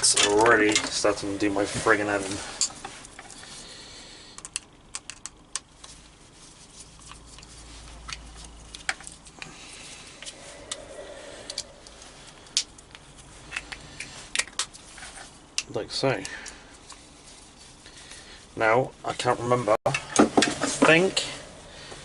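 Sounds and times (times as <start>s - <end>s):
small parts clicking and tapping: 4.3s - 6.0s, 6.9s - 9.5s.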